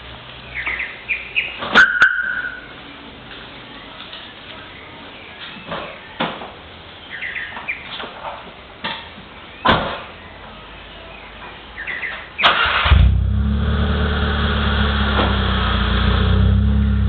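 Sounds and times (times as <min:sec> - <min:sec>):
car engine cranking and idling: 0:12.4 - 0:17.0.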